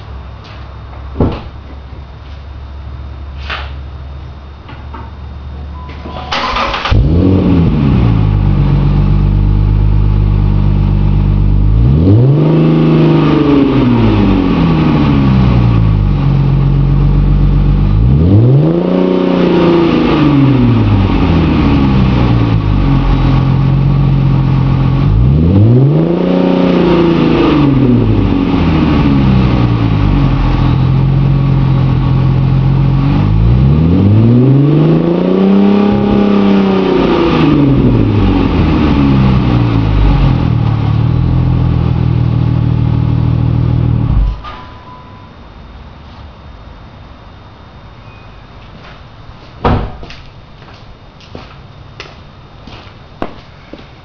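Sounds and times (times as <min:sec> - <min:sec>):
car engine starting: 0:00.0 - 0:44.5
car engine revving: 0:06.3 - 0:44.4.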